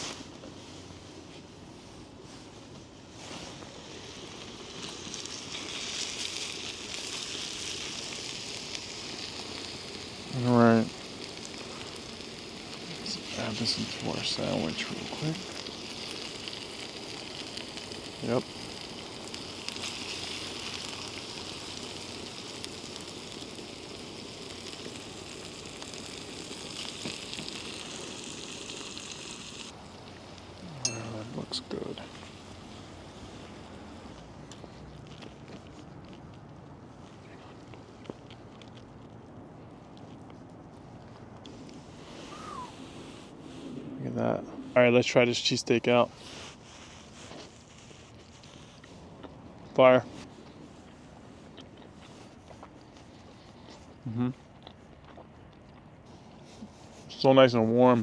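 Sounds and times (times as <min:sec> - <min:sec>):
steak and vegetables sizzling: 0:03.5 - 0:34.1.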